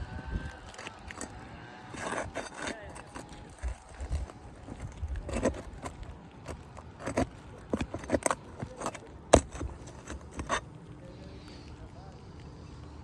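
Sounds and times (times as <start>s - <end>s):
nails pried from roof shingles: 0.6s - 10.7s.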